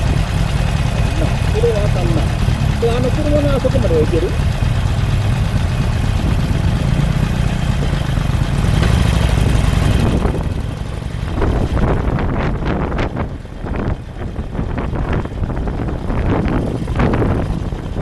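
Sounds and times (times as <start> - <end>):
vehicle engine rumbling: 0.0 - 18.0
wind buffeting microphone: 8.9 - 18.0.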